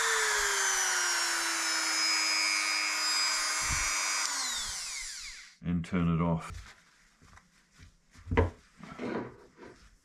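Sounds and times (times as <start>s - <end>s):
rotary tool whine: 0.0s - 5.6s.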